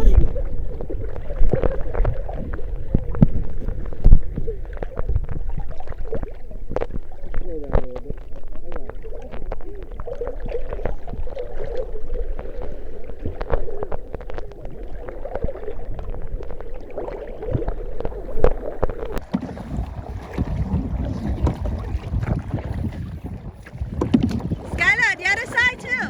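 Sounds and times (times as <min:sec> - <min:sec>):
water splashing against hull: 0:00.0 - 0:26.0.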